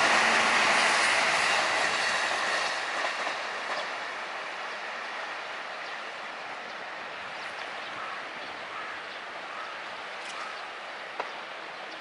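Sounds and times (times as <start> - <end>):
electric train moving away: 0.0 - 12.0
steady outdoor noise: 0.0 - 12.0.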